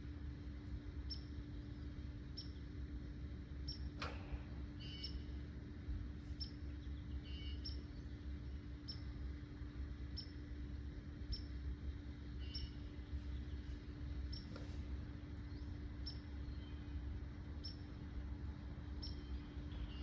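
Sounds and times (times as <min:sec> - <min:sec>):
steady low hum: 0:00.0 - 0:20.0
small bird chipping: 0:01.0 - 0:01.5, 0:02.2 - 0:02.8, 0:03.6 - 0:03.9, 0:04.7 - 0:05.4, 0:06.3 - 0:09.1, 0:10.1 - 0:10.4, 0:11.2 - 0:17.0, 0:17.6 - 0:17.9, 0:19.0 - 0:20.0.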